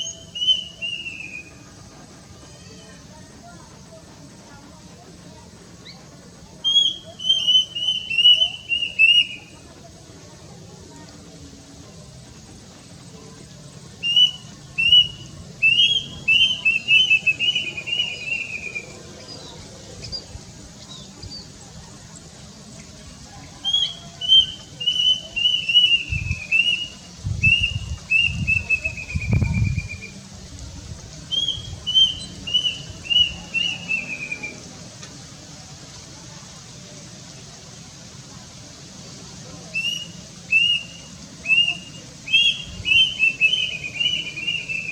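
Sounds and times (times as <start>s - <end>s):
cuckoo whistled song: 0.0s - 3.3s, 5.8s - 9.6s, 13.9s - 21.5s, 23.3s - 30.2s, 31.3s - 34.7s, 39.7s - 44.9s.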